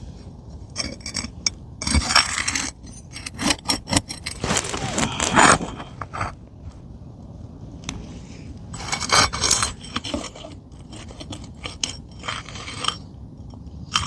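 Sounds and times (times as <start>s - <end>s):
metal tool scraping shingle: 0.7s - 6.4s, 8.7s - 14.0s.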